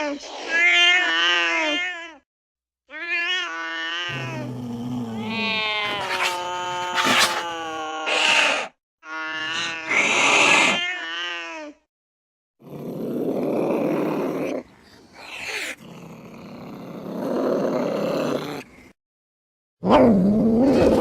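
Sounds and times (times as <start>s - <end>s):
cats yowling: 3.2s - 11.5s
cats growling: 4.1s - 8.7s, 9.4s - 10.9s, 12.6s - 19.0s.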